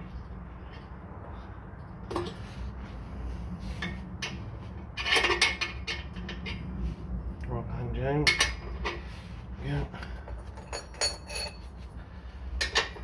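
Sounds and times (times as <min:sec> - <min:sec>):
metal tools clinking on exhaust: 0:05.0 - 0:06.7, 0:08.2 - 0:09.1, 0:09.8 - 0:11.9.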